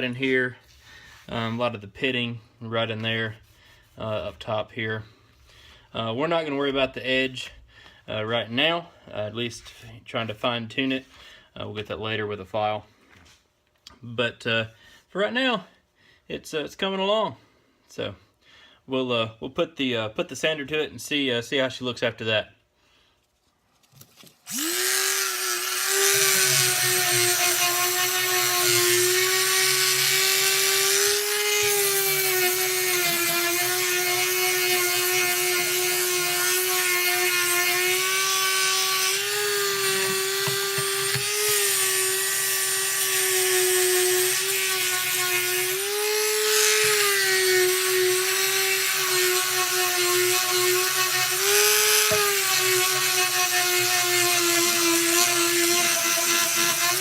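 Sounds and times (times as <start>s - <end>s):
electric palm sander humming: 24.5s - 57.0s.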